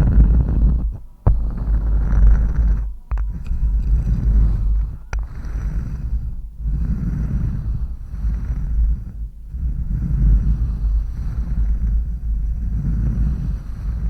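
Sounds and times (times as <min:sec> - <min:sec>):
rubbing scratch on microphone: 0:00.0 - 0:14.0.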